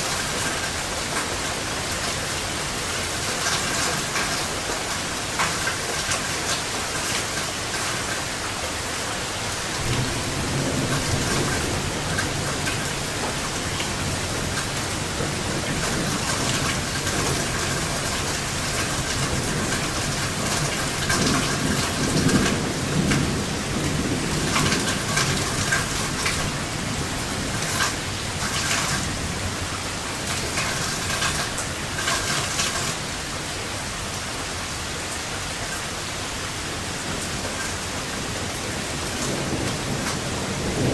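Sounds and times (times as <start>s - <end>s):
rain spattering: 0.0s - 40.9s
thunder rolling: 9.8s - 29.7s, 38.9s - 40.9s.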